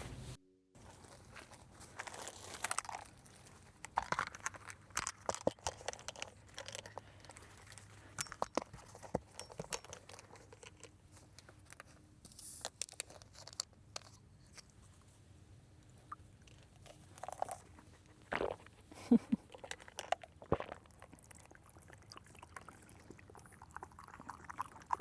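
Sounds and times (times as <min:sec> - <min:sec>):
packaging crinkling and rustling: 0:00.8 - 0:14.2.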